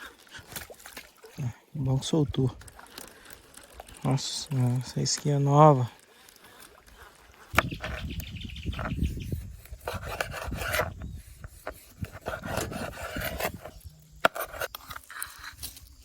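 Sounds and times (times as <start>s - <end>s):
rustling and scraping: 6.5s - 16.0s.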